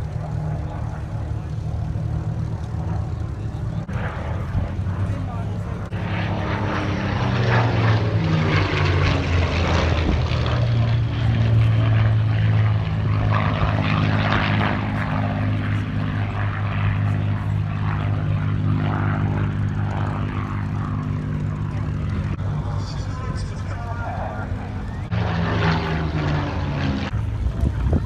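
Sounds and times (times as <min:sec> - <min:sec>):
propeller plane engines droning: 0:00.0 - 0:28.0.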